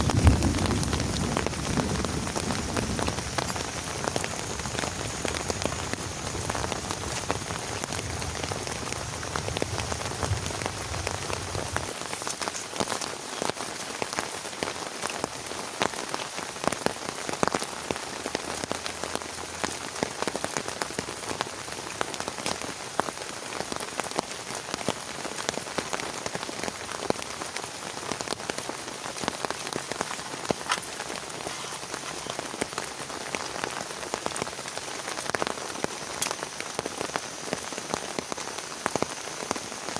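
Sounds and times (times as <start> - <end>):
low rumble: 0.0 - 11.9
heavy rain pattering: 0.0 - 39.9.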